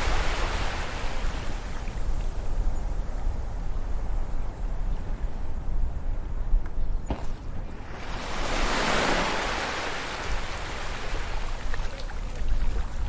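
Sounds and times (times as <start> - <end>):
ocean wave breaking on beach: 0.0 - 1.7, 7.8 - 11.7.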